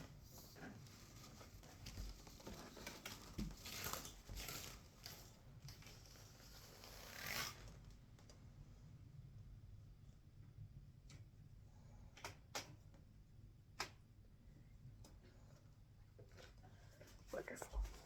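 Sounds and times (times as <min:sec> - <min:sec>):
faint rustling and handling: 0:00.0 - 0:08.6, 0:14.0 - 0:18.0.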